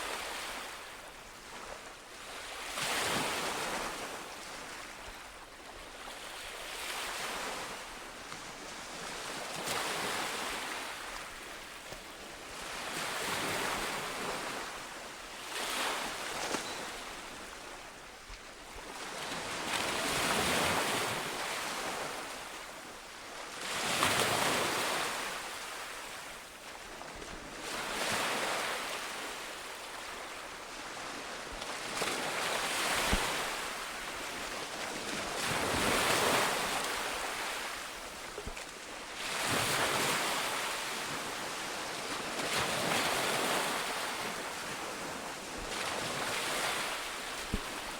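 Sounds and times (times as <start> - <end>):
ocean waves breaking on shore: 6.0 - 22.7, 27.4 - 47.9.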